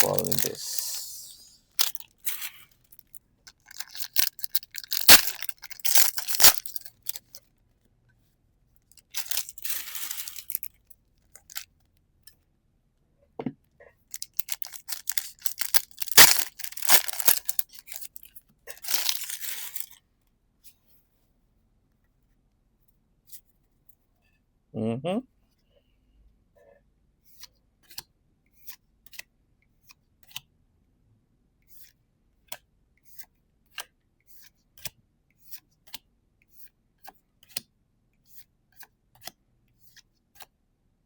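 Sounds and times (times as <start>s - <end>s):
foil pack tearing and crinkling: 0.0s - 2.6s, 3.6s - 7.4s, 9.1s - 10.7s, 14.2s - 19.9s.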